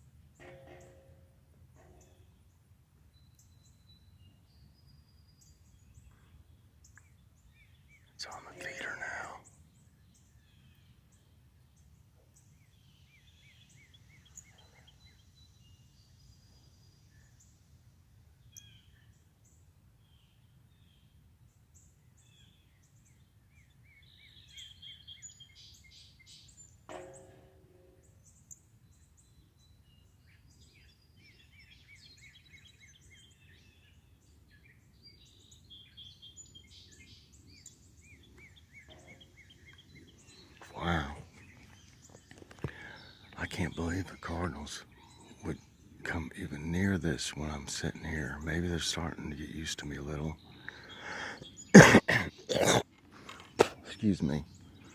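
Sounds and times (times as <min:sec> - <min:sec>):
songbirds chirping and singing: 0:01.6 - 0:54.9.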